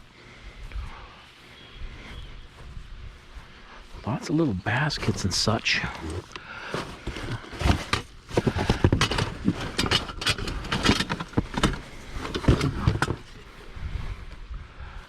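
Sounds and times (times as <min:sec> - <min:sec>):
rustling: 0:04.9 - 0:14.4
items knocking and clattering: 0:06.0 - 0:13.6.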